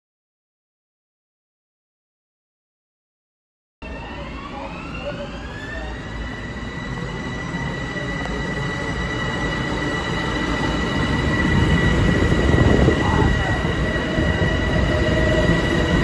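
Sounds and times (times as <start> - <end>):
train rumble approaching: 3.8 - 16.0.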